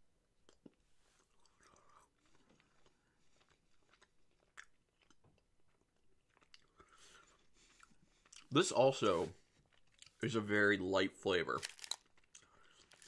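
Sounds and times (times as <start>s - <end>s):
person chewing candy: 0.4s - 8.6s, 9.6s - 10.2s, 11.7s - 13.0s.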